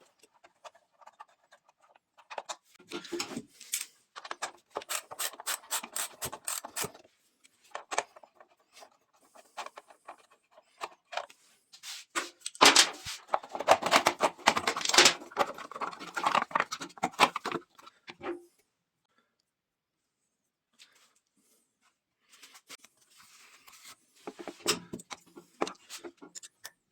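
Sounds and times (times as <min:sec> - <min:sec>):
clicks and scraping on metal: 0:00.0 - 0:11.4, 0:12.1 - 0:18.4, 0:23.7 - 0:26.9.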